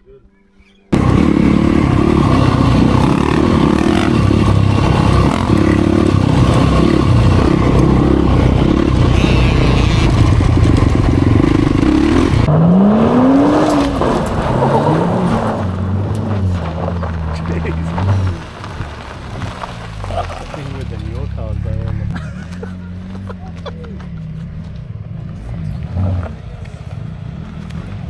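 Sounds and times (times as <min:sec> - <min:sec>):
dirt bike engine running hard: 0:00.9 - 0:12.5
rattling and scraping: 0:02.8 - 0:12.5, 0:13.4 - 0:23.3.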